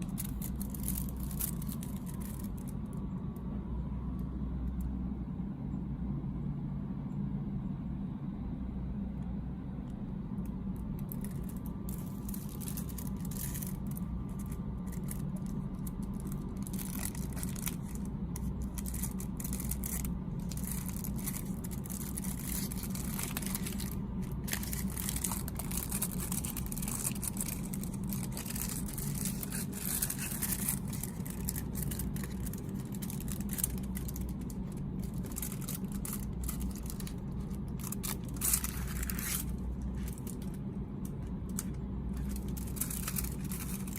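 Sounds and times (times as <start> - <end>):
snack packaging rustling: 0.0 - 2.8, 11.0 - 43.9
steady low hum: 0.0 - 43.9.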